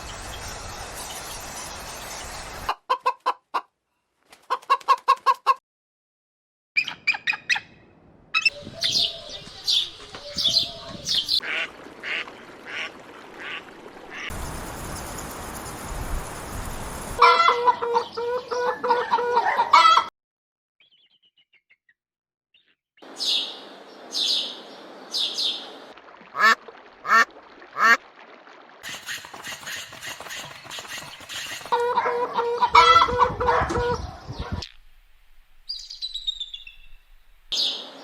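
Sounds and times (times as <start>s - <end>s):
rushing noise: 14.3s - 17.2s
birds clucking: 28.8s - 34.6s
honk-like bird calls: 29.0s - 34.1s.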